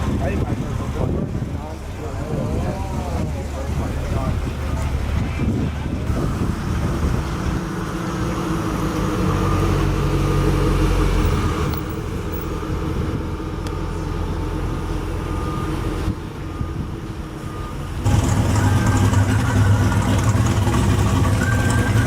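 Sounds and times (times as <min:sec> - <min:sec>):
car engine running: 0:17.6 - 0:22.0.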